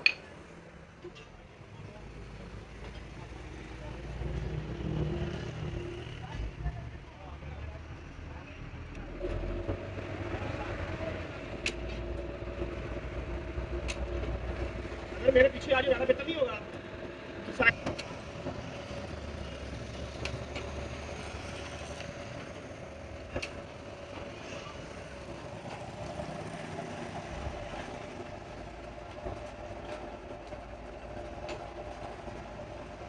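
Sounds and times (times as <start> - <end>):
vehicle engine running: 7.6 - 33.0.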